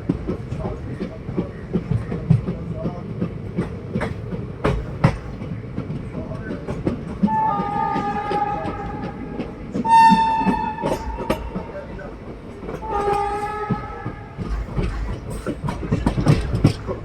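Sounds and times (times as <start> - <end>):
train rumbling on rails: 0.0 - 17.0
locomotive horn blasts: 7.3 - 11.7, 12.8 - 14.5.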